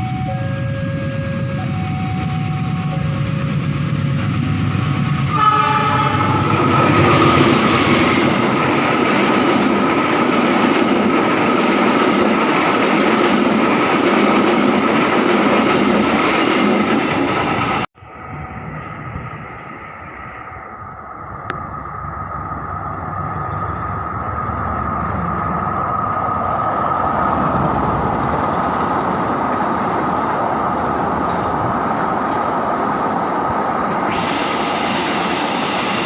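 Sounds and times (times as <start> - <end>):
train wheels rumbling on rails: 0.0 - 36.0
train horn: 5.2 - 7.5, 34.1 - 35.1.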